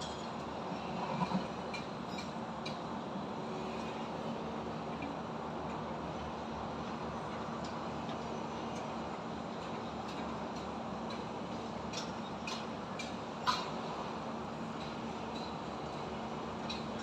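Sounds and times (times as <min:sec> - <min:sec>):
construction work: 0:07.1 - 0:17.0.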